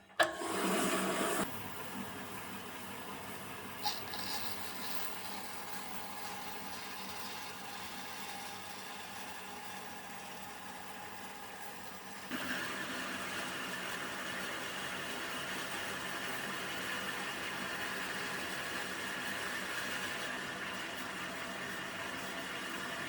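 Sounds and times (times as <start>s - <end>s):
band saw running: 0.2s - 1.5s.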